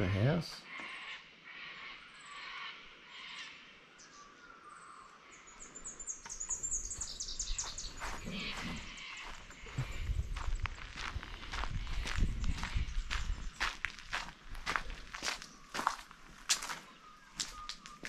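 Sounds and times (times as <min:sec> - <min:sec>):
birds chirping and twittering: 0:00.0 - 0:18.0
footsteps on grass and gravel: 0:06.8 - 0:18.0.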